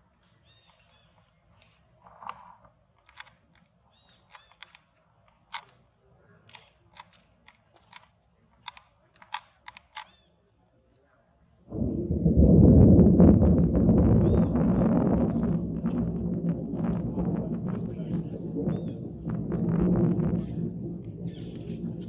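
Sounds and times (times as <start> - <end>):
sharp irregular clicks and taps: 6.5 - 10.1
loud rushing rumbling noise: 11.7 - 22.0.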